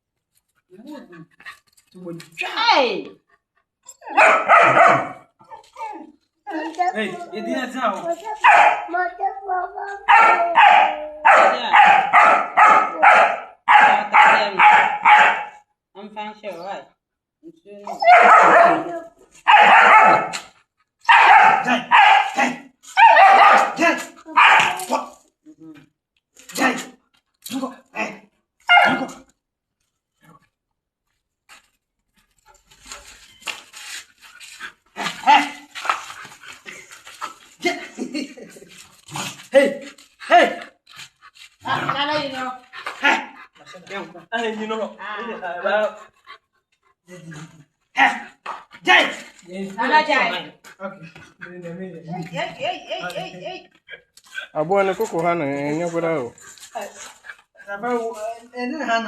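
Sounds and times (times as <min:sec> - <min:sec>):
dog barking angrily: 0:04.0 - 0:05.3, 0:08.4 - 0:09.0, 0:10.0 - 0:15.6, 0:18.0 - 0:25.1, 0:28.6 - 0:29.2, 0:34.9 - 0:35.8, 0:41.6 - 0:43.6, 0:47.9 - 0:49.2.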